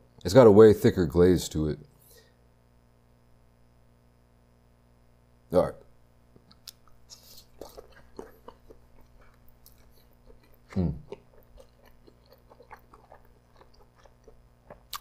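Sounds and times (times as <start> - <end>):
person chewing meat: 6.5 - 15.0
person humming: 10.7 - 11.1.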